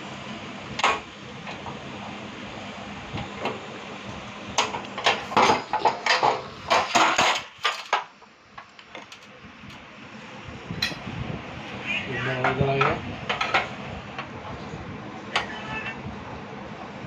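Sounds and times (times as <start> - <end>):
metal stove parts clinking: 10.8 - 11.0.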